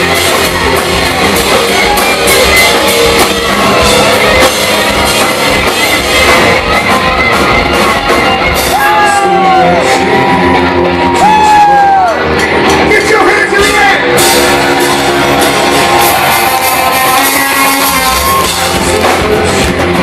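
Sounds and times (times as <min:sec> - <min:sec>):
hard rock band playing live: 0:00.0 - 0:20.0
person singing: 0:16.3 - 0:20.0.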